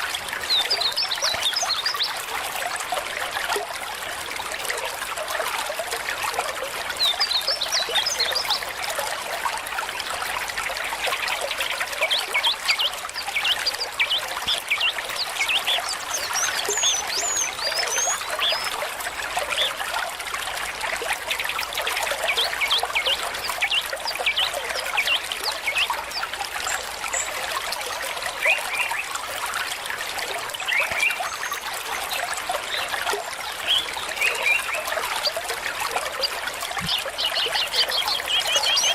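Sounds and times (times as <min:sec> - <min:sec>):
stream trickling and gurgling: 0:00.0 - 0:38.9.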